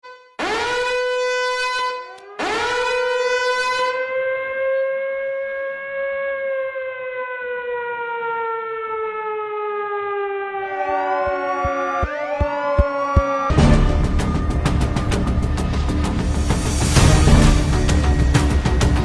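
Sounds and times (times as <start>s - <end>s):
warning siren wailing: 0.0s - 19.0s.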